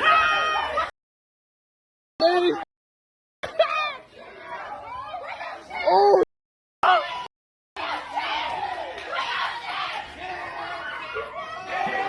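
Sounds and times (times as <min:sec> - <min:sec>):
crowd chatter: 0:03.4 - 0:06.2, 0:06.8 - 0:12.0.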